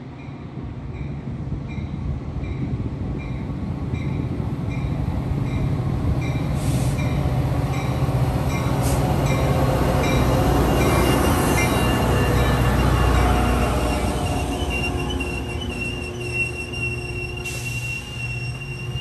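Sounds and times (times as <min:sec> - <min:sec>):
freight cars rumbling past: 0:05.1 - 0:19.0
short hisses or squeals: 0:13.9 - 0:19.0.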